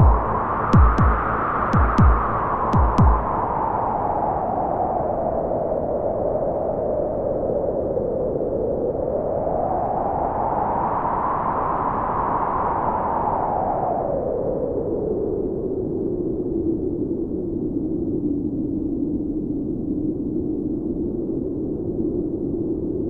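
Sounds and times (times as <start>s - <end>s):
synthesized filtered wind noise: 0.0s - 23.0s.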